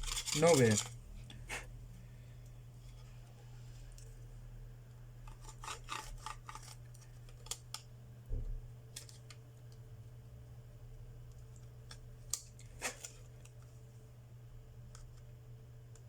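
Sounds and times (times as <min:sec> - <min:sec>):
small tools clicking and scraping: 0:00.0 - 0:01.0, 0:05.3 - 0:07.8
steady low hum: 0:00.0 - 0:16.0.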